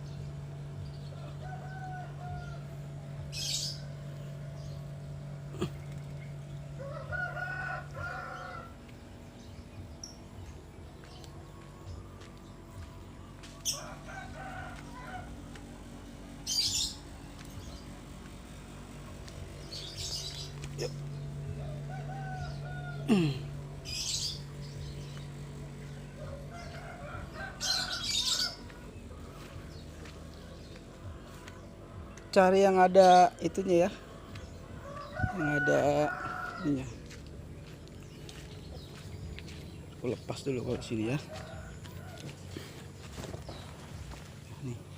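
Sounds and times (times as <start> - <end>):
steady low hum: 0.0 - 44.9
rooster crowing: 1.1 - 3.6, 6.7 - 9.1, 13.5 - 15.6, 19.8 - 24.6, 25.4 - 30.7, 34.6 - 38.4, 40.5 - 43.6
bird scratchy high-pitched calls: 3.3 - 4.0, 16.4 - 17.8, 19.6 - 21.2, 23.8 - 25.4, 26.6 - 30.1.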